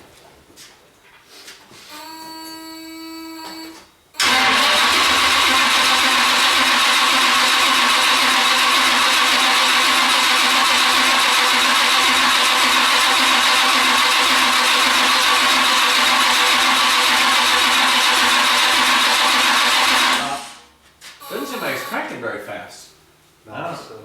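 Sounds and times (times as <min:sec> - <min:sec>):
engine starter cranking: 0:04.2 - 0:20.7.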